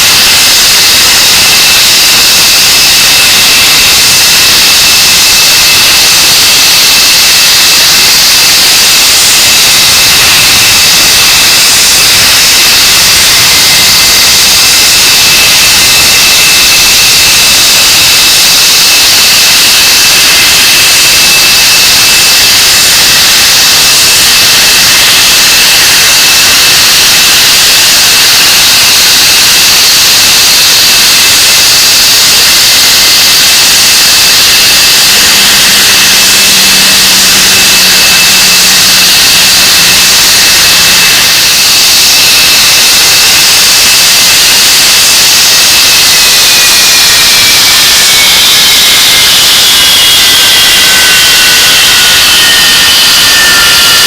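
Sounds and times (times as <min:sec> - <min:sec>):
jet engines roaring: 0:25.2 - 0:47.1, 0:48.0 - 0:54.0.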